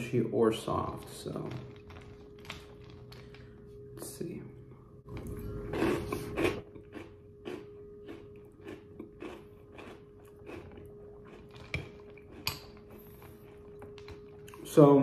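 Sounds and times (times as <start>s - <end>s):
chewing crunchy cereal: 0.6s - 3.4s, 5.1s - 14.8s.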